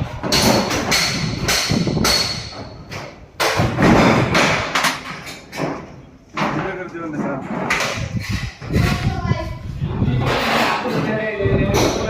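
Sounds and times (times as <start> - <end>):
heavy hammer striking masonry: 0.1 - 5.0.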